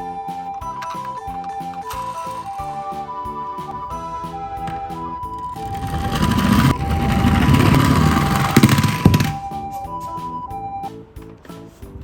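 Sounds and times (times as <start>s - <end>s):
toy car rolling: 1.4s - 2.9s, 5.4s - 9.8s
two-tone ambulance siren: 1.4s - 7.8s, 9.4s - 11.0s.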